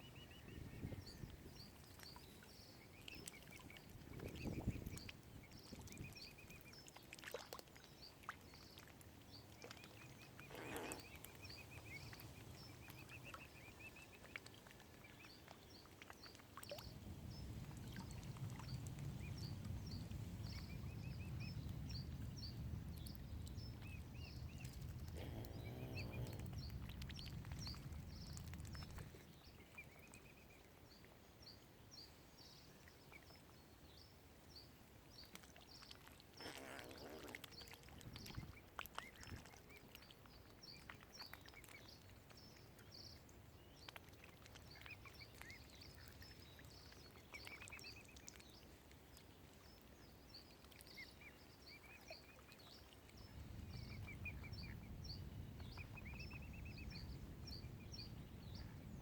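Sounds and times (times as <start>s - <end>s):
low rumble: 19.3s - 28.9s
cygnets peeping: 23.0s - 29.0s.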